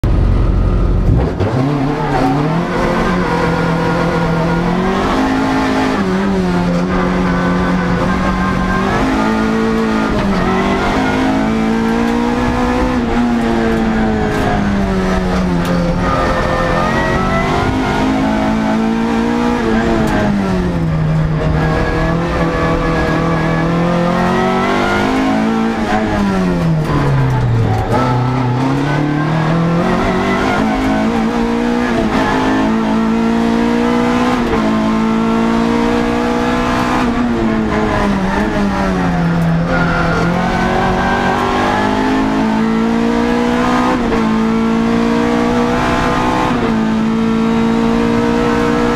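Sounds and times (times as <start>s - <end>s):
car engine revving hard: 0.0s - 48.9s.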